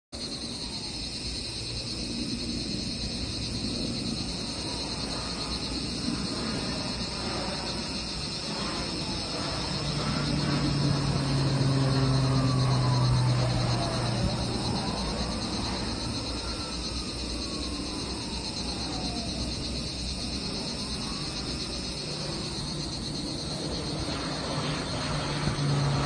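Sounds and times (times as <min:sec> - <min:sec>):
insects droning: 0:00.2 - 0:26.0
low engine hum: 0:01.7 - 0:26.0.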